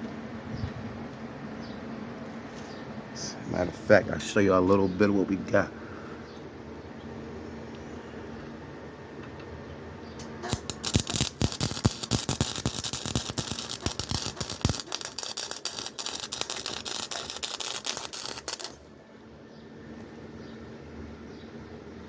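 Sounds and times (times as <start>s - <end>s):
steady low hum: 0.0s - 22.0s
welding arc crackling: 10.2s - 18.9s.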